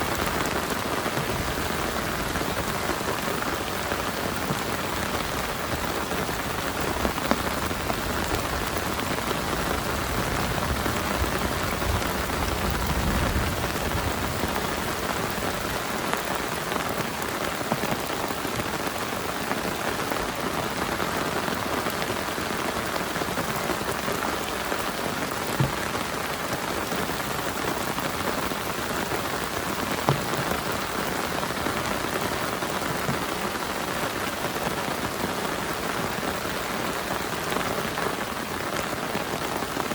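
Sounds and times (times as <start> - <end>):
heavy rain on a shelter: 0.0 - 39.9.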